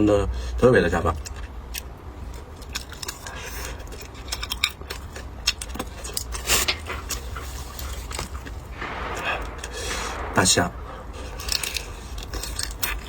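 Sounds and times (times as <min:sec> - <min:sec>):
low steady hum: 0:00.0 - 0:13.0
chewing and utensil clicks: 0:01.1 - 0:08.6.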